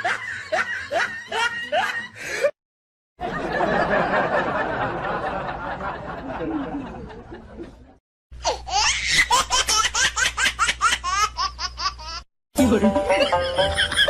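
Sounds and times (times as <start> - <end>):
person laughing: 13.0 - 14.0
high-pitched rapid laugh: 13.1 - 14.0.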